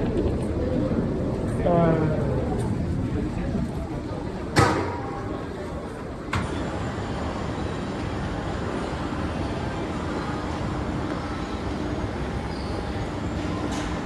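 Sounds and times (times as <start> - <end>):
low rumbling background noise: 0.0 - 14.0
sharp knock: 4.6 - 5.4.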